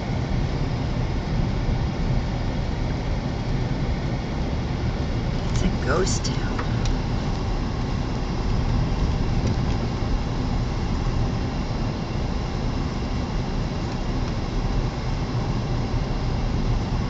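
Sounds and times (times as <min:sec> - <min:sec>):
car engine and tyres rumbling: 0:04.4 - 0:17.0.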